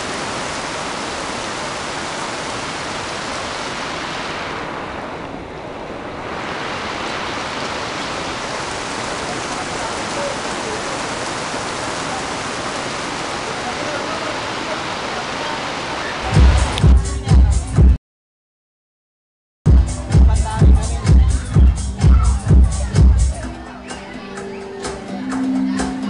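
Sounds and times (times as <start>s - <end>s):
heavy rain pouring: 0.0s - 17.9s.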